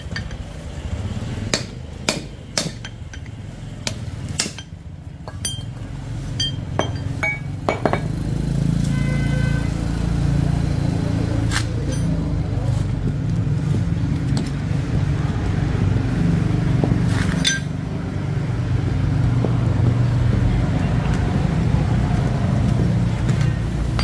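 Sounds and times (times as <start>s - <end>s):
low mechanical rumble: 9.9s - 24.0s
light clicks and clinks: 11.8s - 12.4s.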